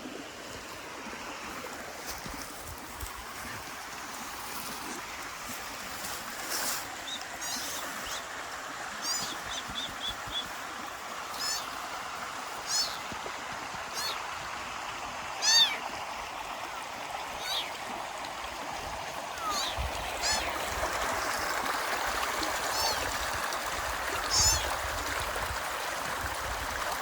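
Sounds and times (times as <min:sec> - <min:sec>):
kittens mewing: 0:12.7 - 0:13.0, 0:15.4 - 0:15.8, 0:19.4 - 0:20.6, 0:24.3 - 0:24.7.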